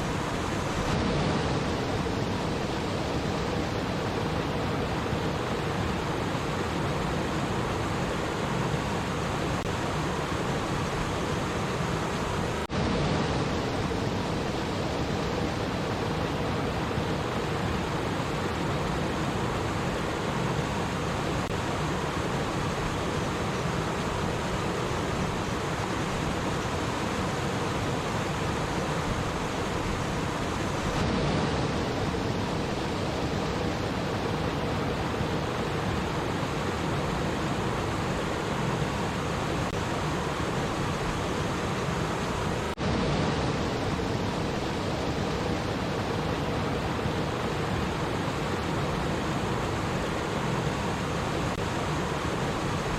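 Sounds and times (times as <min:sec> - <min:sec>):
water rushing in a stream: 0:00.0 - 0:52.9.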